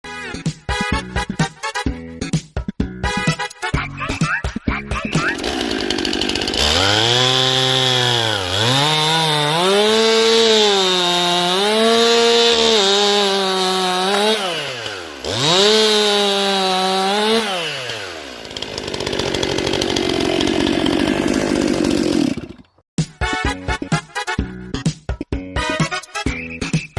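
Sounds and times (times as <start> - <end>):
chainsaw cutting at high revs: 5.1 - 22.7.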